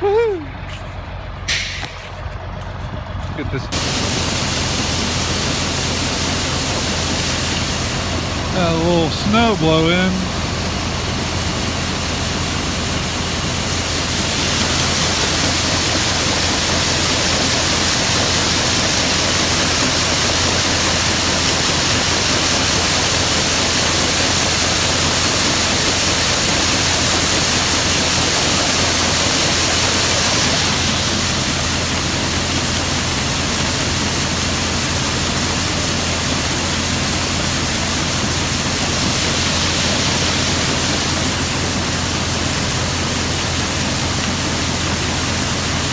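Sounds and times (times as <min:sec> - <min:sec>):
engine running: 0:00.0 - 0:45.9
loud rushing hiss: 0:03.7 - 0:33.1.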